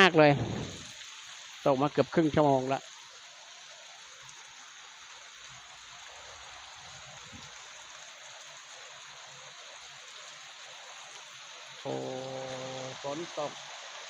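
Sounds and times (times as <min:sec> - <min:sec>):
heavy rain falling: 0:00.0 - 0:02.9, 0:11.8 - 0:14.0.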